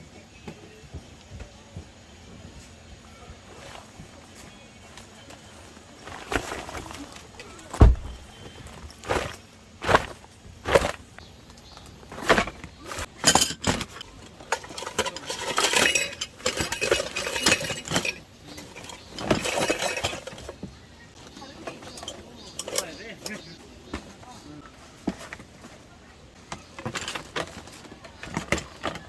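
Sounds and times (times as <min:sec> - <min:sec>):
dishes scraping and rattling: 0:05.9 - 0:24.1, 0:25.0 - 0:29.0
dishes and utensils clinking: 0:12.1 - 0:23.6.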